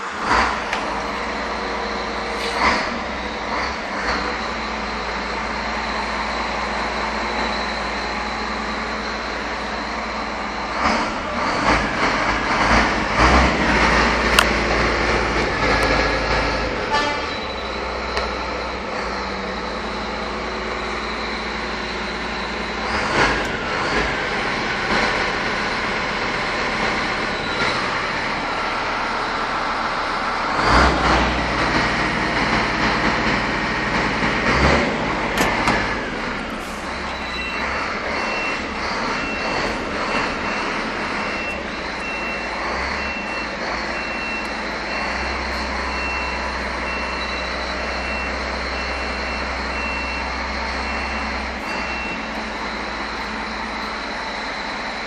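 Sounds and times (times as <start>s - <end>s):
diesel truck engine running: 0.0s - 55.0s
high beep: 37.0s - 53.9s.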